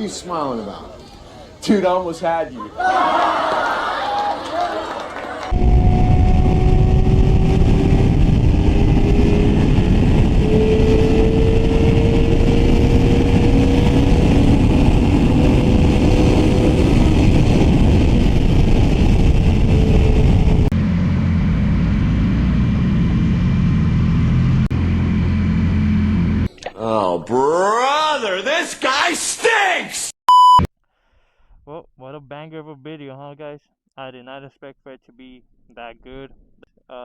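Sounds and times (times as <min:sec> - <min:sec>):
wind rush on microphone: 0:05.5 - 0:22.8
motorcycle engine: 0:05.5 - 0:26.5.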